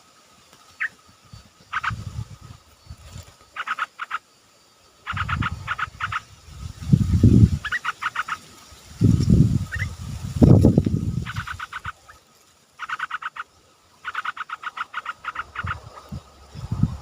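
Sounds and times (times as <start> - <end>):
bird chattering: 1.6 - 2.2, 3.5 - 4.2, 5.0 - 6.3, 7.4 - 8.4, 9.7 - 9.9, 11.1 - 12.2, 12.8 - 16.2.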